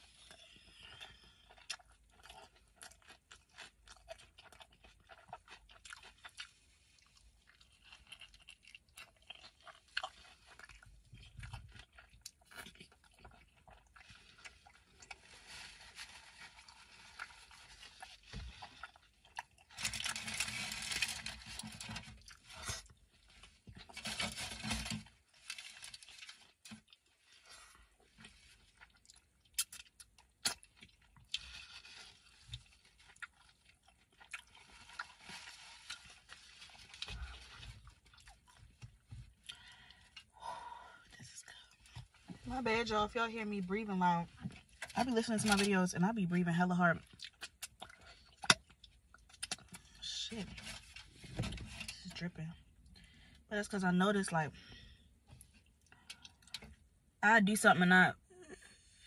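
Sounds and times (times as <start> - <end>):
person chewing food: 0.1 - 15.5, 16.5 - 20.8, 26.7 - 40.4, 47.0 - 50.0, 54.8 - 56.9.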